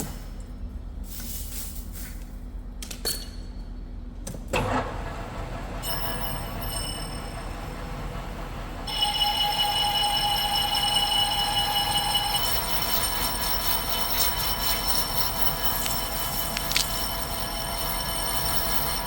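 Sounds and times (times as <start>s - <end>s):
metal lathe ringing whine: 5.0s - 19.0s.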